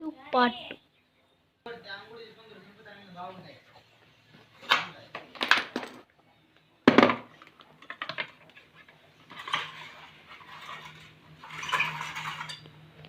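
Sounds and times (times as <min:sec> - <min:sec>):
rustling scrape: 0:08.5 - 0:12.6.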